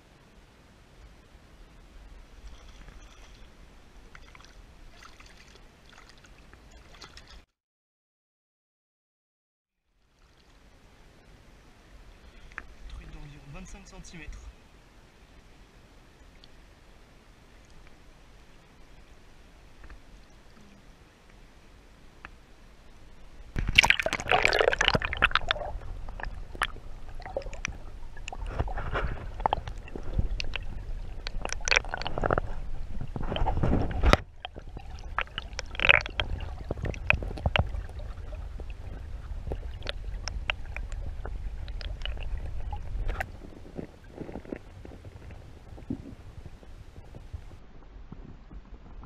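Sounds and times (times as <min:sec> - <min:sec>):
water sloshing and gurgling: 0:01.4 - 0:07.5, 0:10.0 - 0:14.6, 0:16.3 - 0:49.0
low rumble: 0:22.8 - 0:49.0.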